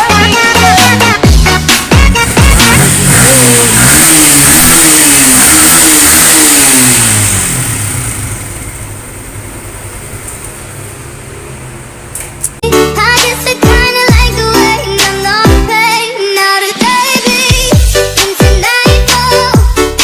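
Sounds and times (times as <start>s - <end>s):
motorcycle engine revving: 0.3s - 12.6s.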